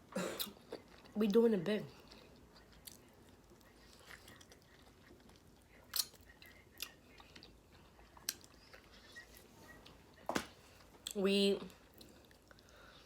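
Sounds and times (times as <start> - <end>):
chewing with wet mouth clicks: 1.9 - 10.2, 11.8 - 13.0.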